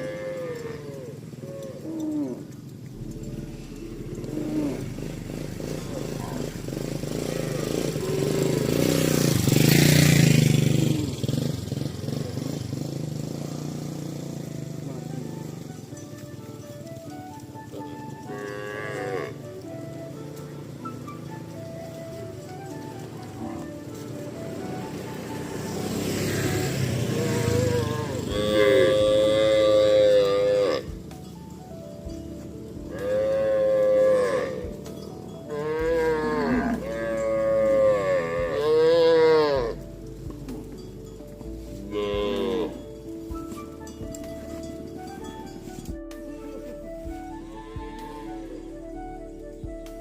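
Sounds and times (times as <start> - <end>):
cow mooing: 0.0 - 11.1, 17.8 - 20.1, 25.4 - 31.0, 32.8 - 34.8, 35.5 - 39.9, 41.9 - 42.9, 47.4 - 48.7
motorcycle passing close by: 0.0 - 45.3
rough noisy rumble: 2.8 - 15.5.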